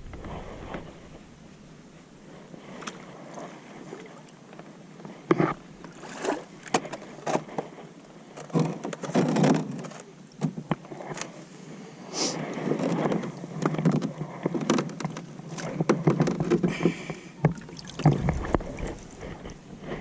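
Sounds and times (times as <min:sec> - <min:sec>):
paddle splashes: 0:05.8 - 0:07.3, 0:16.8 - 0:20.0.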